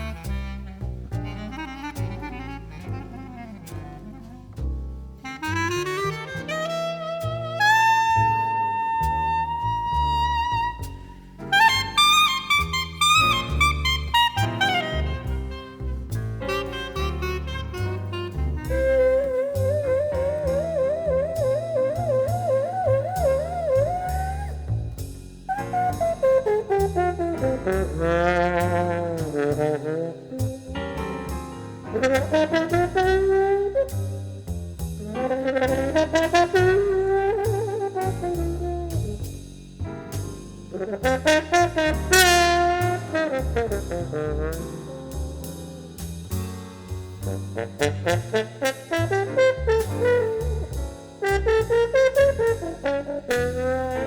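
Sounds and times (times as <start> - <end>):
bass line: 0.0 - 54.0
saxophone playing: 5.2 - 10.5, 11.5 - 19.3, 47.6 - 54.0
horn playing sliding melody: 11.5 - 24.5, 40.8 - 45.9, 47.2 - 54.0
drums with cymbal ticks: 24.0 - 26.0, 37.4 - 42.2, 42.8 - 54.0.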